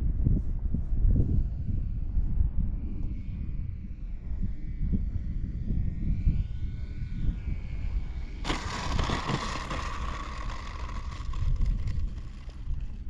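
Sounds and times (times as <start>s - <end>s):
wind rumble on microphone: 0.0s - 13.0s
electric model plane motor whine: 5.3s - 13.0s.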